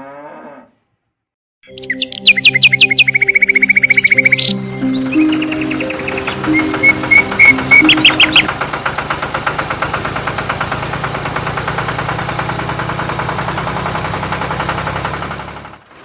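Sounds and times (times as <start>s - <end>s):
engine knocking over low hum: 8.4s - 16.0s.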